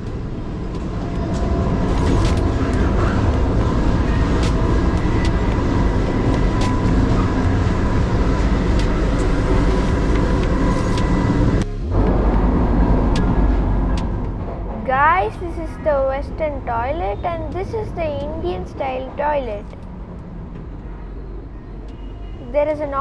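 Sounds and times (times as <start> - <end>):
thin steady whine: 0.0 - 23.0
train low rumble: 0.0 - 23.0.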